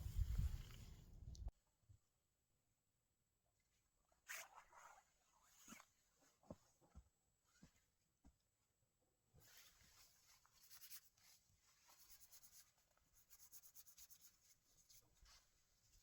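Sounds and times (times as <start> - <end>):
faint scratching and rustling: 0.0 - 1.5, 9.4 - 16.0.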